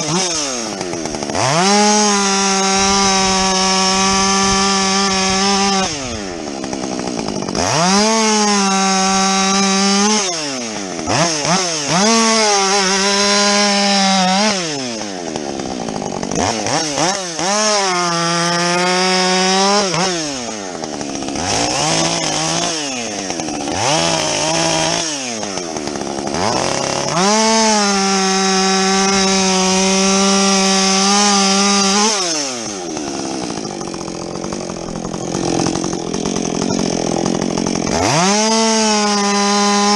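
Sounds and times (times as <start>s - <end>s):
chainsaw revving and cutting: 0.0s - 39.9s.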